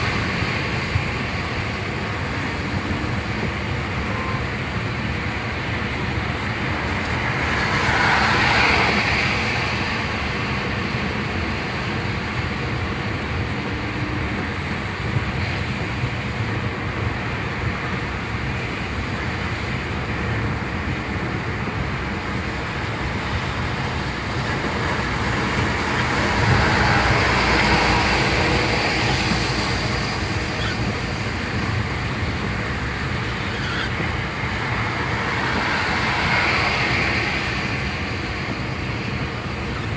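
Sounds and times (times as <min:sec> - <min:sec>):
car engine: 0:14.3 - 0:39.9.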